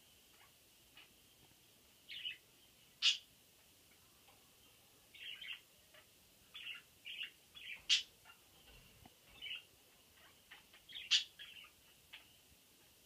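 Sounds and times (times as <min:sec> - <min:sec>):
budgerigars chirping: 0:02.1 - 0:02.4, 0:03.0 - 0:03.3, 0:05.2 - 0:08.8, 0:09.4 - 0:12.4.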